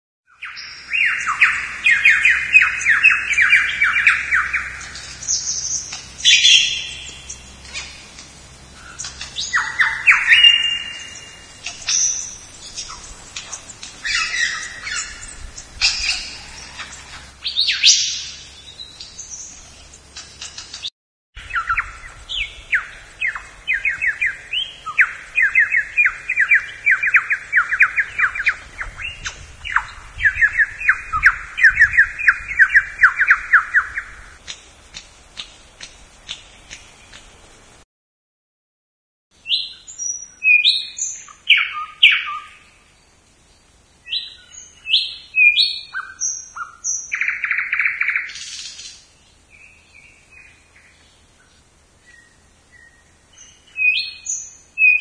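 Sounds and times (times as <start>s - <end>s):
birds squawking and chirping: 0.4s - 34.4s.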